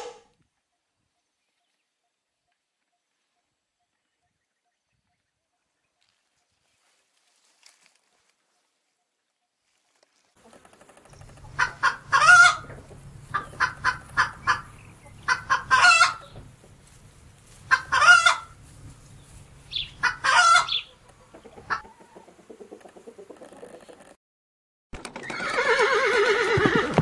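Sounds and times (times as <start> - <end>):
low steady hum: 10.4 - 21.7
chickens clucking and squawking: 10.4 - 24.2.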